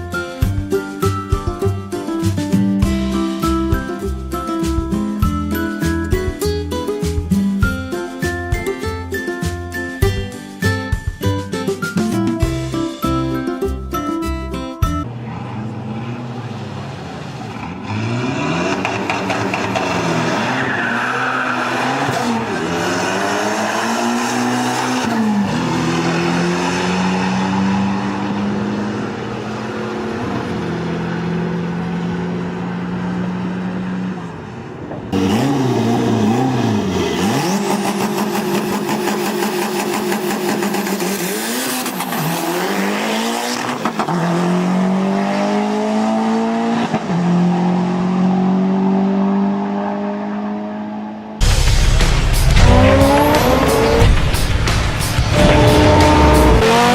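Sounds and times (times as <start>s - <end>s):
car engine revving: 15.1s - 56.9s.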